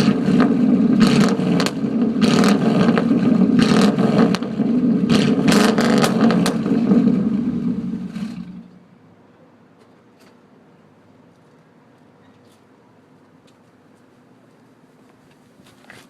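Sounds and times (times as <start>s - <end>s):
loud raspy engine revving: 0.0s - 8.8s.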